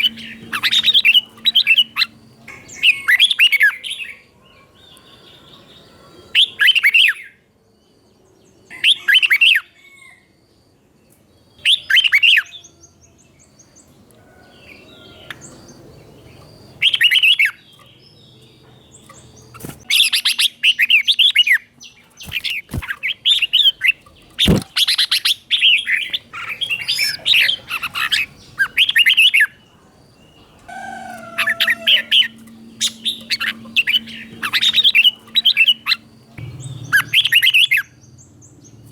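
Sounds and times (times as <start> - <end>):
bulbul singing warbling phrases: 19.2 - 38.0.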